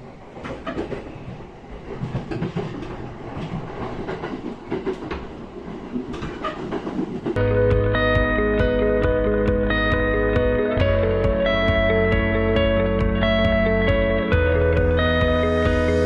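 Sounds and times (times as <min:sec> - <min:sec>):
rail clicks and clacks: 0:00.0 - 0:07.4
train rumbling on rails: 0:00.0 - 0:07.4
guitar music: 0:07.4 - 0:16.0.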